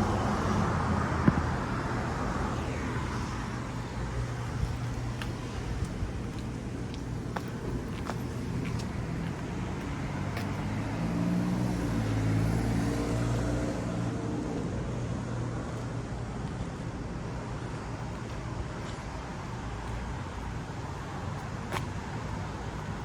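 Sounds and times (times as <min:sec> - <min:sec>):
traffic noise: 0:00.0 - 0:23.0
vehicle passing by: 0:08.4 - 0:14.8.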